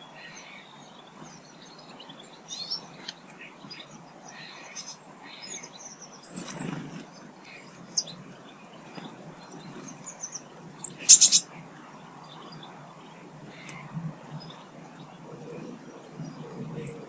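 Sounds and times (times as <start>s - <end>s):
songbirds chirping: 0.0s - 17.0s
harsh bird chirps: 10.0s - 11.5s.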